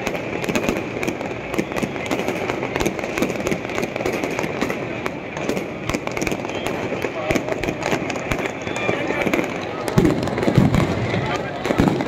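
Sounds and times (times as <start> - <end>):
fireworks cracking and popping: 0.0 - 12.0.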